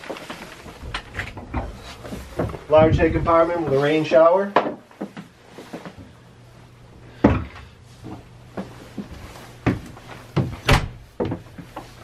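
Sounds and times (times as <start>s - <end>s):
knocks and thumps: 0.8s - 3.4s, 7.2s - 11.8s.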